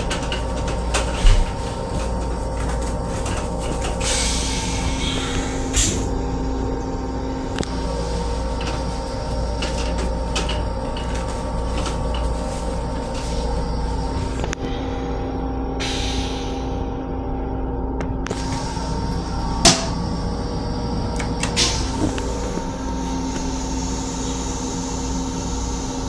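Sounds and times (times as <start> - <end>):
railcar interior rumble and hum: 0.0 - 26.0
hiss: 4.0 - 6.1, 15.8 - 16.7.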